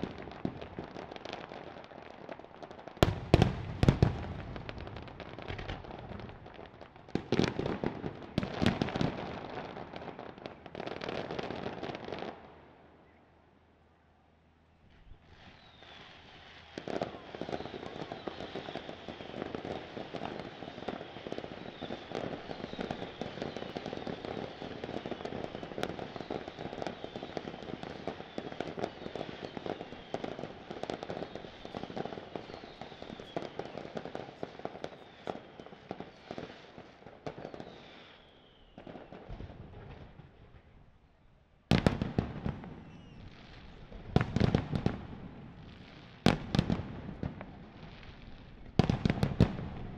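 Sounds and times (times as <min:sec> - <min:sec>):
fireworks crackling and popping: 0:00.0 - 0:12.6, 0:14.9 - 0:40.8, 0:41.7 - 0:49.9
fireworks whistling: 0:14.9 - 0:40.7, 0:41.7 - 0:49.9.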